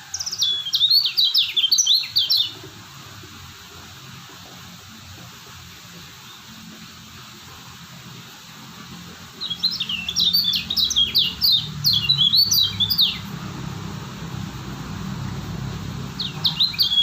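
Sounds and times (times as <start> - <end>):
bird whistling high notes: 16.2 - 17.0.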